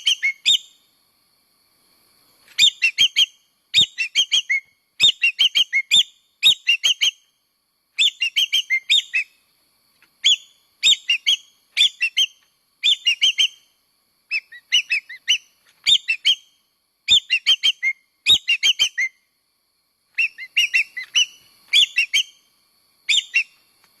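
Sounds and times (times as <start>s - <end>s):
magpie calling with whistled notes: 0.0s - 0.8s, 2.5s - 7.3s, 8.0s - 9.4s, 10.2s - 13.7s, 14.3s - 19.2s, 20.1s - 22.4s, 23.1s - 23.6s.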